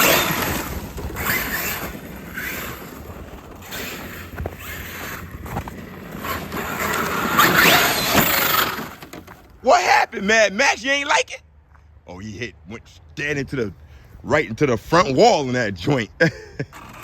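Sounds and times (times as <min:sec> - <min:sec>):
electric motor whining: 0:00.0 - 0:09.4
tyres scrabbling over ground: 0:00.0 - 0:10.8.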